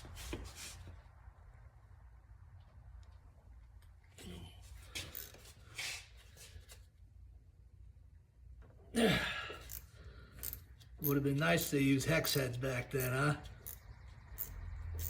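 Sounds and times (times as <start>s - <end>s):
hand tools scraping metal: 9.6s - 14.6s.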